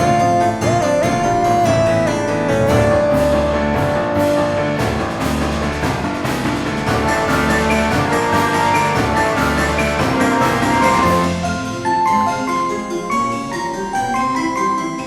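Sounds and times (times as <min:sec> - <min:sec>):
music with drum beat: 0:02.6 - 0:11.4.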